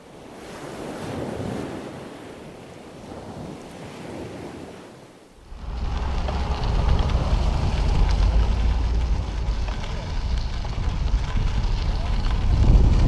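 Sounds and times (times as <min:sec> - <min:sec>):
wind buffeting microphone: 0:00.2 - 0:13.0.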